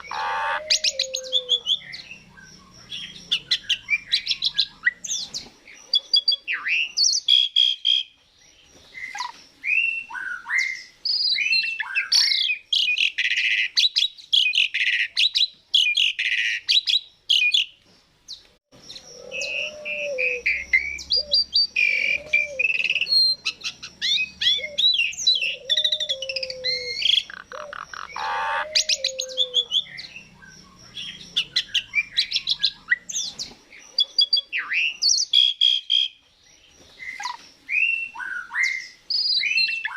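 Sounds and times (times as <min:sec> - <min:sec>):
starling singing: 0:00.0 - 0:08.1, 0:18.8 - 0:36.2.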